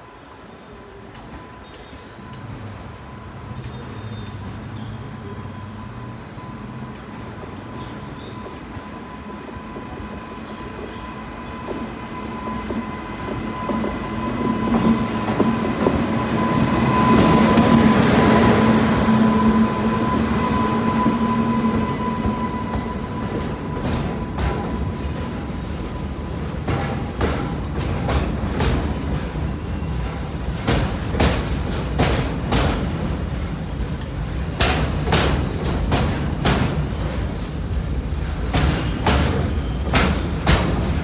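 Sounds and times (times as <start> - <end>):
electric locomotive hum: 2.3 - 41.0
high steady tone: 12.0 - 25.5.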